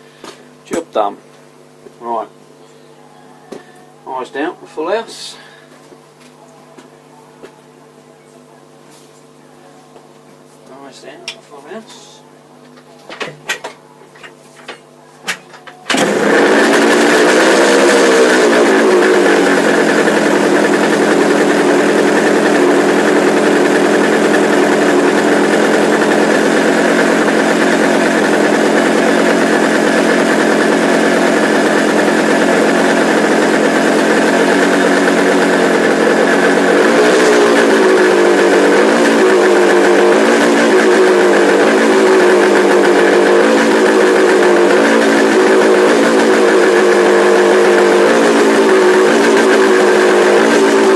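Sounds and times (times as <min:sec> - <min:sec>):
two-stroke motorcycle engine: 0:15.5 - 0:50.9.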